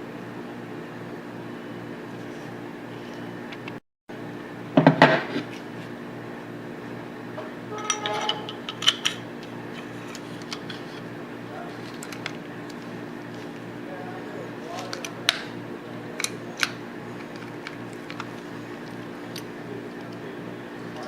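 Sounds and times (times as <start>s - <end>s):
steady low hum: 0.0s - 21.0s
metal parts clattering: 7.8s - 9.1s.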